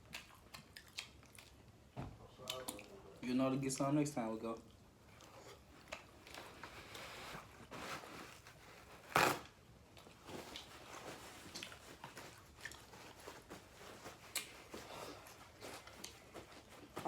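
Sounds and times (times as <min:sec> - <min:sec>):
chewing: 0:00.0 - 0:01.8, 0:02.4 - 0:03.0, 0:10.0 - 0:16.8.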